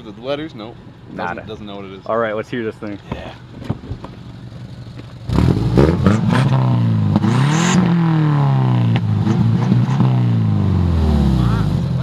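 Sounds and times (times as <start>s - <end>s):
car engine revving: 3.5s - 12.0s.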